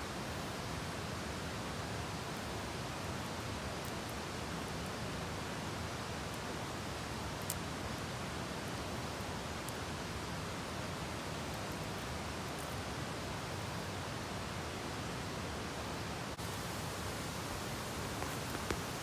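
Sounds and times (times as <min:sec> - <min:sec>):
outdoor background hiss: 0:00.0 - 0:19.0
faint sharp clicks: 0:16.7 - 0:19.0.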